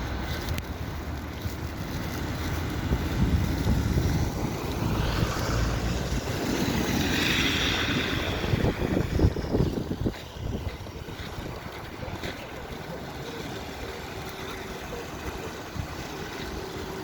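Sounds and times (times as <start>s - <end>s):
wind hiss: 0.0s - 12.1s
wind buffeting microphone: 0.0s - 17.0s.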